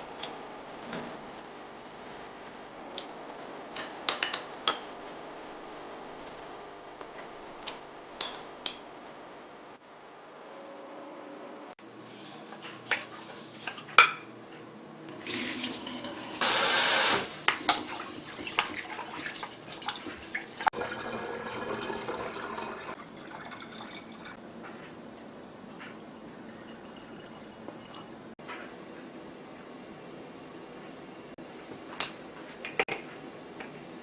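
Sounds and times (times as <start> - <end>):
water gushing: 15.3 - 24.4
water splashing and trickling: 17.7 - 24.4.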